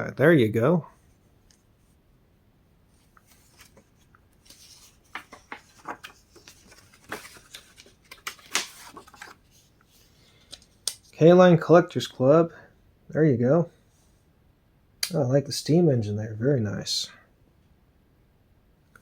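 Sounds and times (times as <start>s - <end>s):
paper pages rustling: 3.0s - 11.1s.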